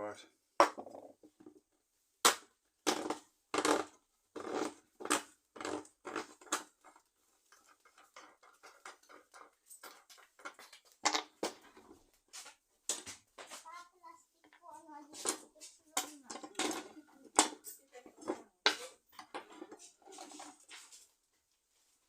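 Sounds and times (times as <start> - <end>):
scraping and rattling: 3.6 - 13.7, 14.4 - 21.1.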